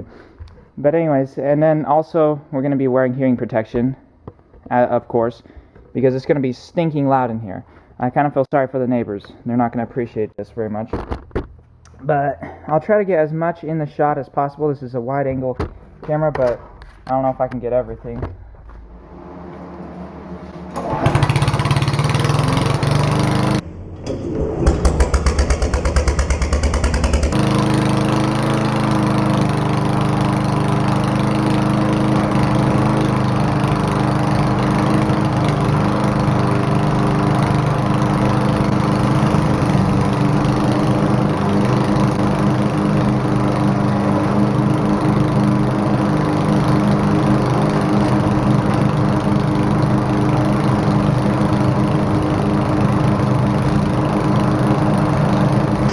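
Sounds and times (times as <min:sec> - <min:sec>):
small petrol engines running: 0:19.1 - 0:23.6, 0:24.2 - 0:55.9.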